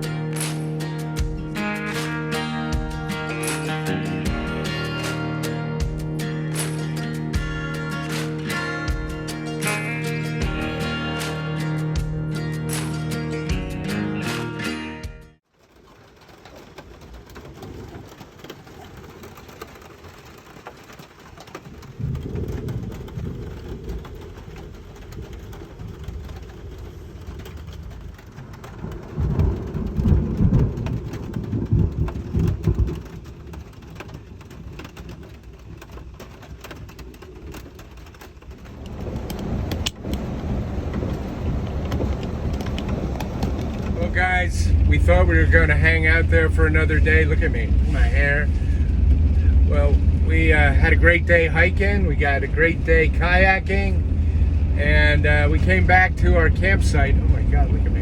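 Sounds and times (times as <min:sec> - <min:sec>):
heavy rain falling: 0:00.0 - 0:14.8, 0:15.4 - 0:58.0
thunder rumbling: 0:15.6 - 0:58.0.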